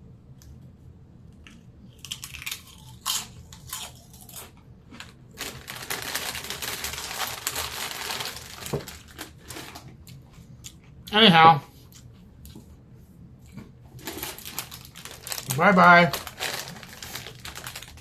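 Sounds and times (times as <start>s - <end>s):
chip bag crinkling: 1.9s - 10.2s, 14.0s - 18.0s.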